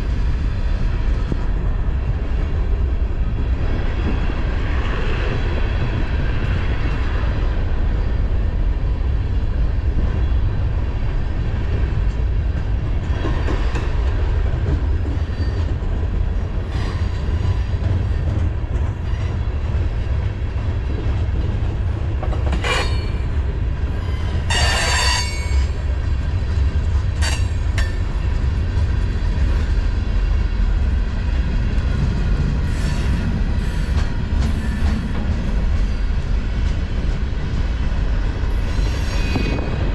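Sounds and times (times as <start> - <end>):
train wheels rumbling on rails: 0.0 - 39.9
wheel squeals: 23.9 - 25.8.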